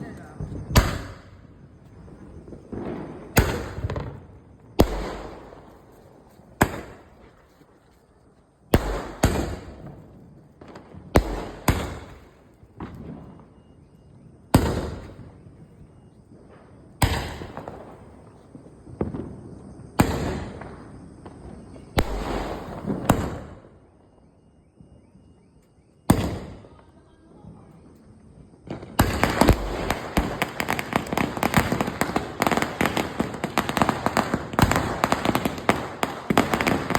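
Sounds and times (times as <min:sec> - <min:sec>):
firecracker bangs echoing: 0:00.0 - 0:05.9, 0:06.5 - 0:07.4, 0:08.7 - 0:13.4, 0:14.5 - 0:15.5, 0:17.0 - 0:23.7, 0:26.1 - 0:27.7, 0:28.7 - 0:36.9
crackling firecracker bangs: 0:00.0 - 0:07.4, 0:08.7 - 0:13.4, 0:14.5 - 0:15.5, 0:16.4 - 0:23.7, 0:26.1 - 0:26.7, 0:28.6 - 0:36.9.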